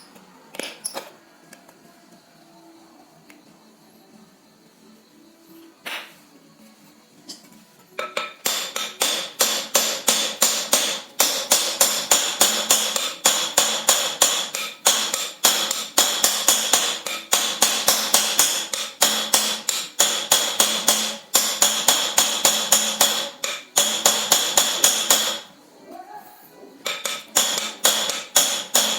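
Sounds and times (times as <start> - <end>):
rapid hammering on metal: 8.2 - 25.6, 26.8 - 28.9.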